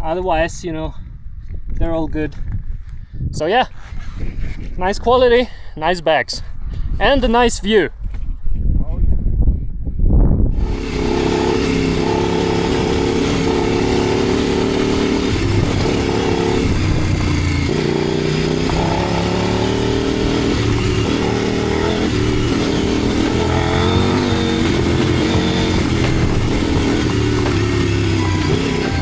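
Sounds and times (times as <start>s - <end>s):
motorcycle engine running: 10.6s - 29.0s.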